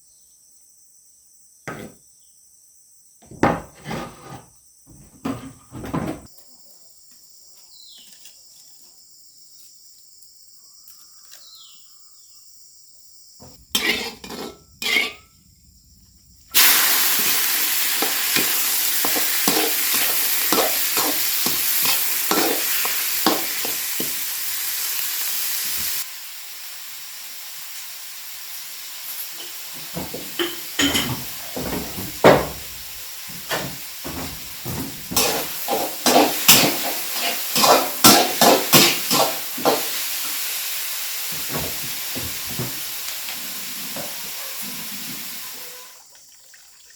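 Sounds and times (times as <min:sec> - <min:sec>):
food sizzling in hot oil: 0:13.5 - 0:15.4, 0:16.5 - 0:46.8
stirring scrapes and clatters: 0:13.8 - 0:15.3, 0:18.4 - 0:24.2, 0:33.4 - 0:39.9
knocks: 0:30.0 - 0:35.2.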